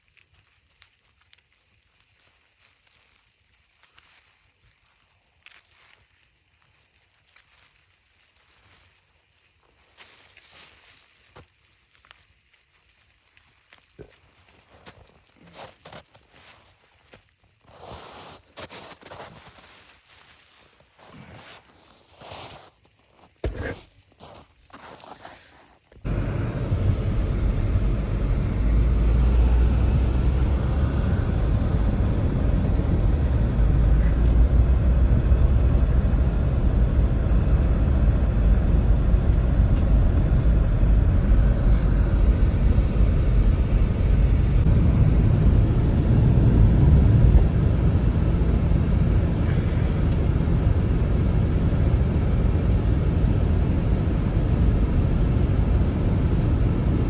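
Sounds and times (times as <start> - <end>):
blizzard wind rumbling: 26.0 - 57.0.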